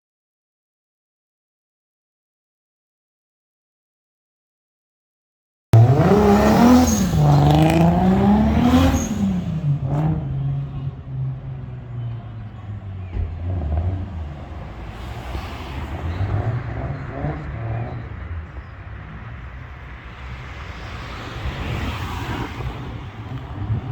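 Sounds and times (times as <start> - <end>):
vehicle engine revving: 5.8 - 23.9.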